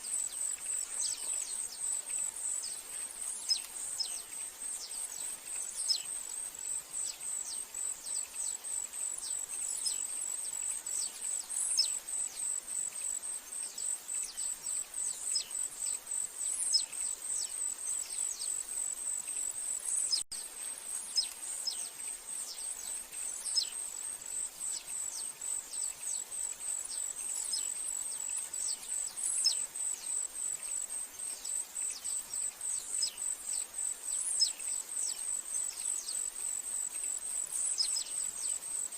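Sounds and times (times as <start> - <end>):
bird chirps: 0.0 - 20.2, 21.0 - 36.3, 36.9 - 38.6
pulsing insect trill: 21.0 - 38.9.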